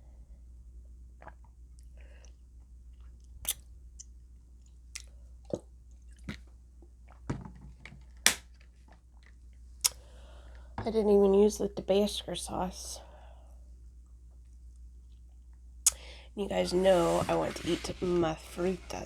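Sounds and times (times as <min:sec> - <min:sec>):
person chewing with wet smacks: 0:01.2 - 0:06.4.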